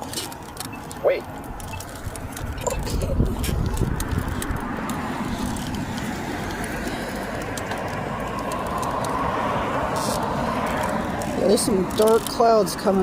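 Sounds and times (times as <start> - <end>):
vehicle passing by: 2.8 - 13.0.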